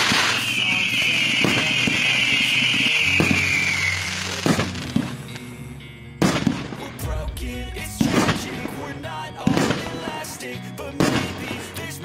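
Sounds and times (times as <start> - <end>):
firework rushing hiss: 0.0 - 5.2
firework shells banging: 0.0 - 5.2.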